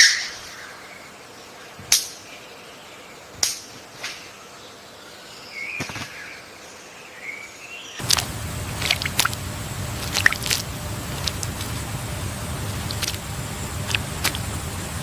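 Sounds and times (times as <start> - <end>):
birds chirping: 4.3 - 15.0
steady low rumble: 8.0 - 15.0.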